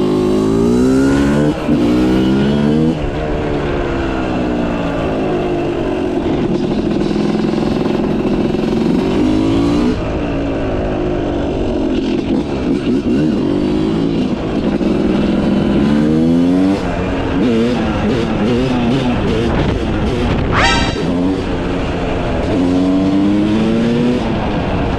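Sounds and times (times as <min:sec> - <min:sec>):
two-stroke motorcycle engine revving: 0:00.0 - 0:04.0, 0:05.8 - 0:10.2, 0:11.8 - 0:24.9
brief sharp rising sound: 0:20.5 - 0:21.5.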